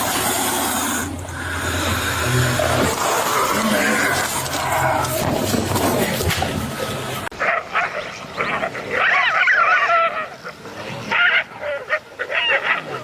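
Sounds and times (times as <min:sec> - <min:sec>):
noisy sound: 0:00.0 - 0:12.1
animal whining and yelping: 0:07.4 - 0:13.0.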